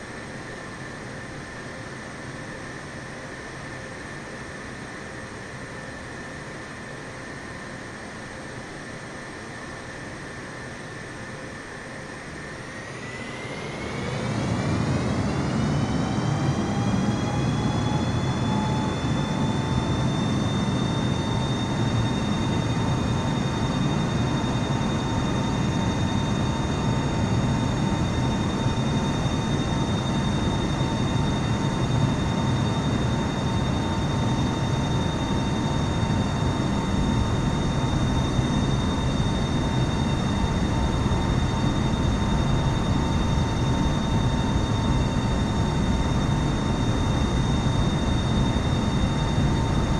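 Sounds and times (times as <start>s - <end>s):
jet engines spooling up: 12.0s - 49.9s.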